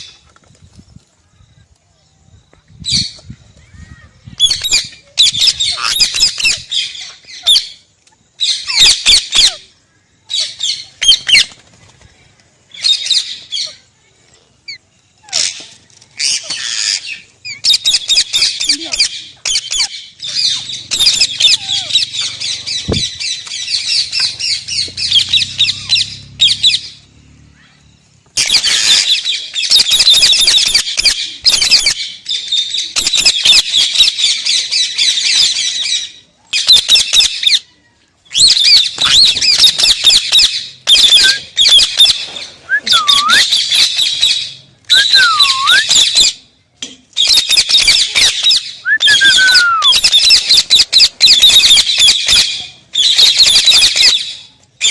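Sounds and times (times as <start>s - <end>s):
parrot squawking: 4.5s - 6.6s, 16.2s - 22.8s
parrot whistling: 42.7s - 43.7s, 44.9s - 46.2s, 48.2s - 52.2s.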